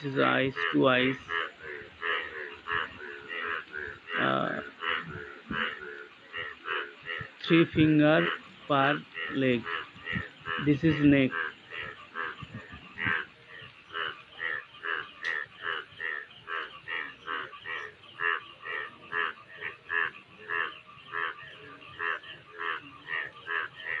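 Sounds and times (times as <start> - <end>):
frog croaking: 0.0 - 24.0.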